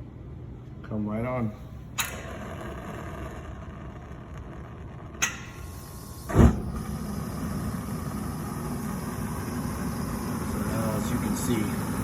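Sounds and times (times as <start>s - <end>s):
gas burner rumble: 1.6s - 12.0s
gas burners igniting whump: 1.7s - 12.0s.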